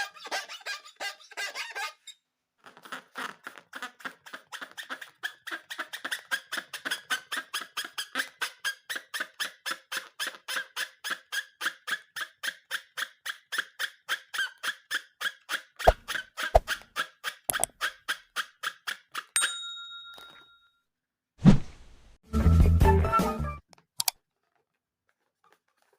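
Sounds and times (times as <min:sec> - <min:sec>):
rapid regular squeaking: 0:00.0 - 0:18.8.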